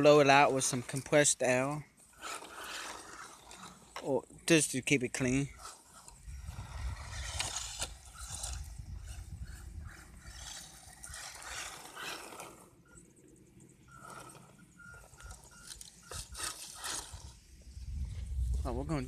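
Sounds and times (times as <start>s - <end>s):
electric toy truck motor: 2.0s - 4.1s, 5.5s - 13.1s, 13.8s - 17.7s.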